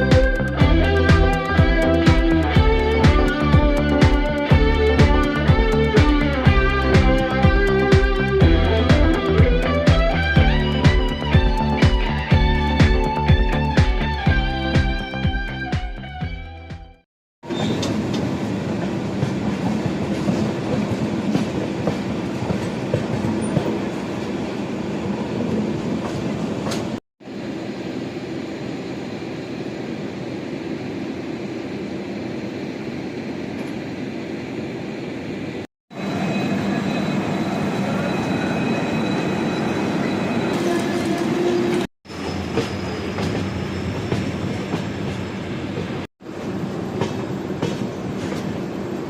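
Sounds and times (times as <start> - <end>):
train wheels rumbling on rails: 17.4 - 27.0, 35.9 - 49.0.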